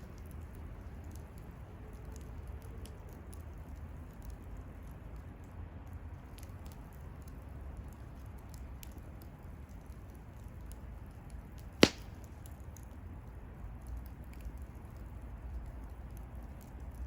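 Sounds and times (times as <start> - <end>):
bonfire burning with low rumble: 0.0 - 17.0
fire crackling: 6.1 - 17.0
loud pop from burning wood: 11.8 - 12.4.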